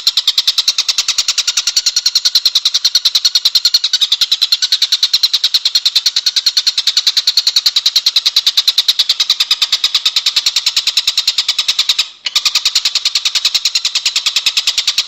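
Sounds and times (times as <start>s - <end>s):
songbird chattering trill: 0.0s - 15.0s.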